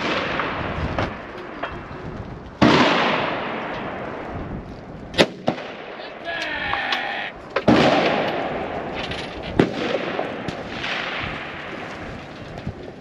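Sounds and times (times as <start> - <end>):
rifle shot echoing: 0.0 - 0.8, 2.6 - 4.1, 5.2 - 6.2, 7.6 - 11.8.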